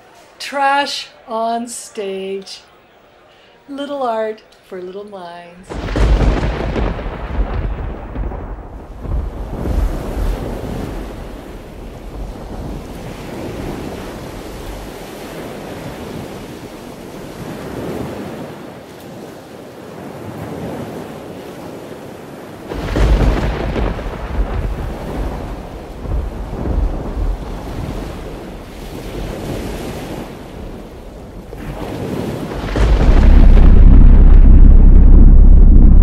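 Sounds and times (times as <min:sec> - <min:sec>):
ocean waves: 0:00.0 - 0:36.0
deep rumble: 0:05.7 - 0:15.0, 0:22.8 - 0:28.9, 0:31.4 - 0:36.0
wind: 0:05.7 - 0:35.5.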